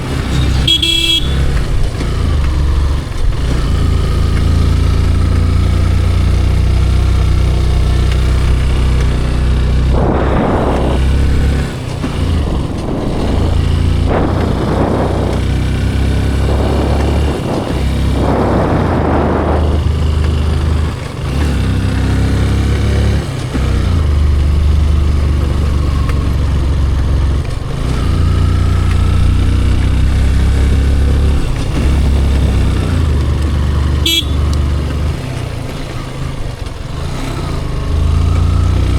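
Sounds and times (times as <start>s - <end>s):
motorcycle riding: 0.0s - 38.9s
wind rumble over microphone: 0.0s - 38.9s
passing rushing noise: 7.2s - 24.8s.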